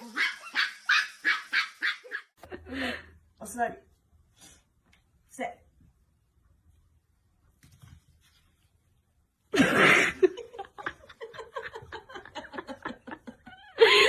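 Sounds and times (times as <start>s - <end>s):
laughter in rapid bursts: 9.6s - 14.0s.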